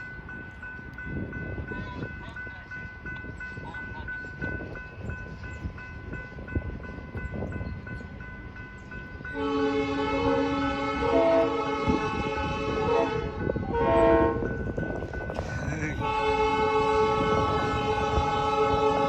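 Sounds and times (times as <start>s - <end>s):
crossing warning bell ringing: 0.0s - 19.0s
locomotive air horn: 9.4s - 14.5s, 16.0s - 19.0s.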